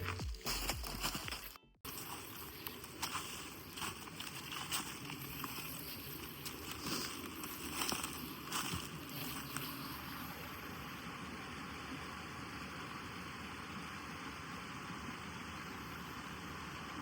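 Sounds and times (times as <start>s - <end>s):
steady outdoor hiss: 1.9s - 17.0s.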